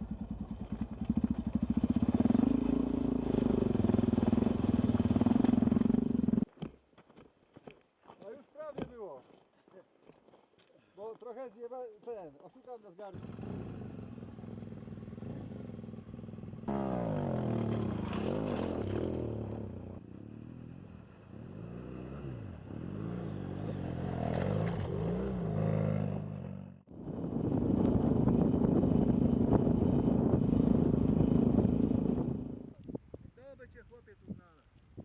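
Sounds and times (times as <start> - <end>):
motorcycle engine revving: 0.0 - 6.5, 13.1 - 32.8.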